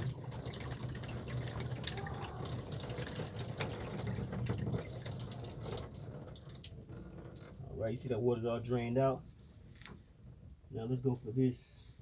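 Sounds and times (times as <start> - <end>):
water draining and splashing: 0.0 - 7.8.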